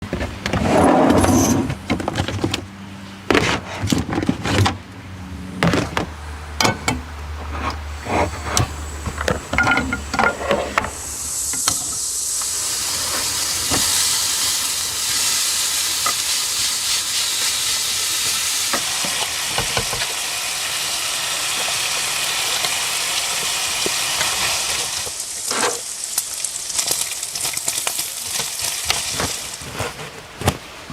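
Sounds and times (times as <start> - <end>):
food sizzling in a pan: 8.0 - 29.7
cookware knocking and clattering: 9.2 - 10.4.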